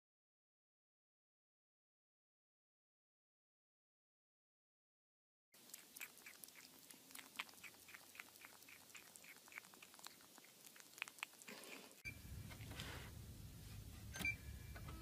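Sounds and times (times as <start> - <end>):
kitten chewing on plastic: 5.6 - 12.0
low hum: 12.0 - 15.0.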